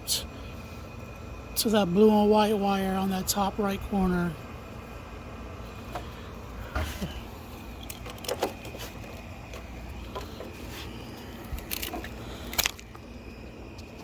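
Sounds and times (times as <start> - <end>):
steady low rumble: 0.0 - 14.0
connectors clicking and rattling: 7.7 - 14.0.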